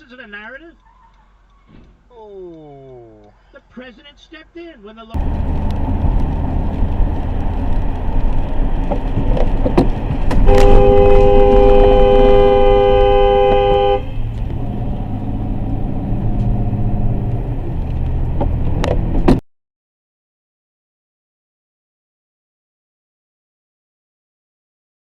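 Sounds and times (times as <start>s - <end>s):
vehicle road and engine rumble: 0.0s - 19.4s
car horn held: 10.4s - 14.2s.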